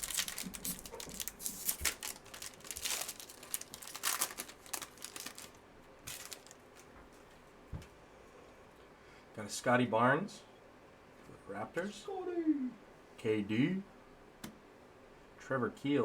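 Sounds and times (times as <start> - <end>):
wrapper crinkling and tearing: 0.0 - 6.9.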